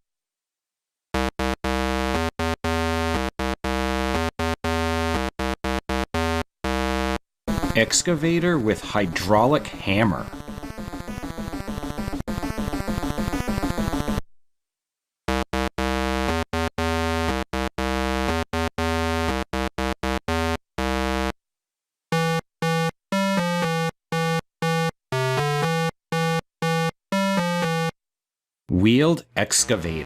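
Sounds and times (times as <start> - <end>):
electronic synthesizer melody: 1.2 - 14.2, 15.3 - 21.3, 22.1 - 27.9.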